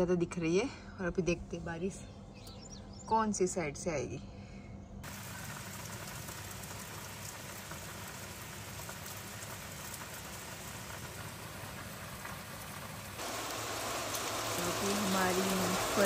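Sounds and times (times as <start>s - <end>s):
heavy rain on foliage: 5.0s - 16.0s.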